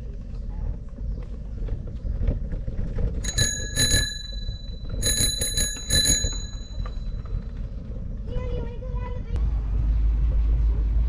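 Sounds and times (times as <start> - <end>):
bicycle bell ringing: 3.2 - 7.4.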